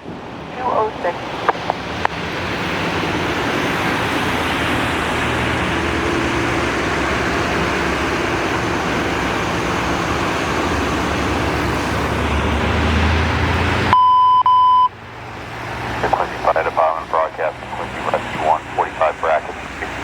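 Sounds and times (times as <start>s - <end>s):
traffic on slushy road: 0.0s - 20.0s
vehicle engine hum: 0.0s - 20.0s
radio beep tone: 13.9s - 14.9s.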